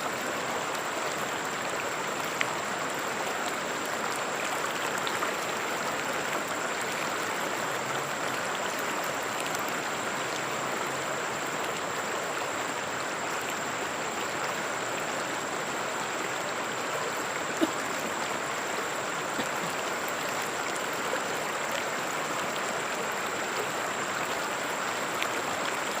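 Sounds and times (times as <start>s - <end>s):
river water flowing over stones: 0.0s - 26.0s.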